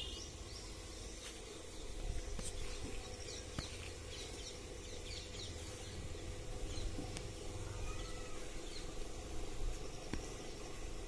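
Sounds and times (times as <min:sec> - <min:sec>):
small birds chirping: 0:00.0 - 0:11.0
steady low rumble: 0:00.3 - 0:07.8.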